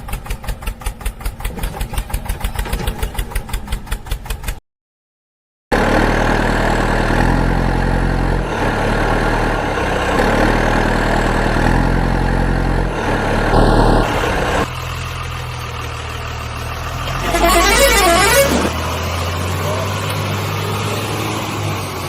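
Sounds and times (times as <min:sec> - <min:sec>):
heavy vehicle engine idling: 0:07.6 - 0:22.0
short high tone: 0:17.1 - 0:18.8.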